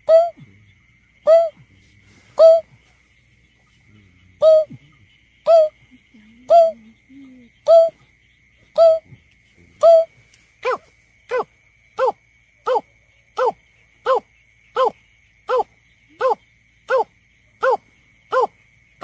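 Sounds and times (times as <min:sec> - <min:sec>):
bird hooting call: 0:00.0 - 0:00.4, 0:02.4 - 0:02.7, 0:04.4 - 0:04.8, 0:05.5 - 0:05.7, 0:06.4 - 0:06.9, 0:07.6 - 0:08.0, 0:08.8 - 0:09.0.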